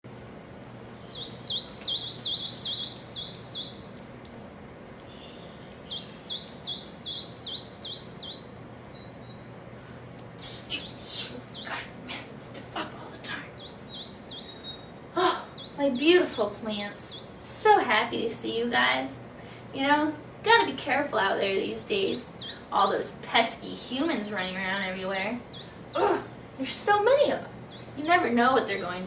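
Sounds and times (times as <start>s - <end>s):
birds chirping high: 0.3s - 29.0s
harsh bird calls: 0.4s - 17.6s, 18.2s - 20.7s, 21.6s - 29.0s.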